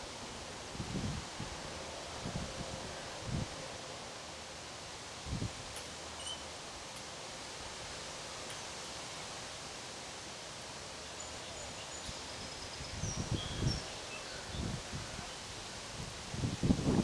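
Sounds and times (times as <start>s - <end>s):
wind rustling leaves: 0.0s - 17.0s
wind buffeting microphone: 12.8s - 17.0s.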